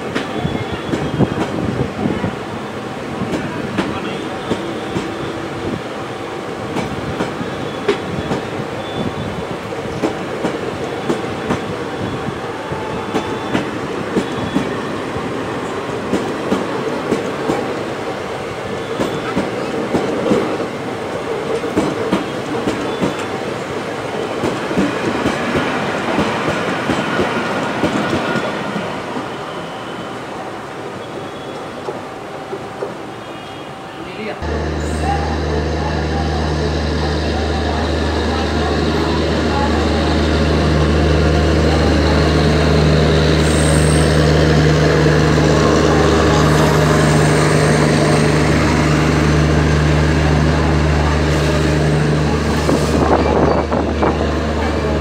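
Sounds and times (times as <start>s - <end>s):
steel wheels rumbling on rail: 0.0s - 30.1s, 34.4s - 55.0s.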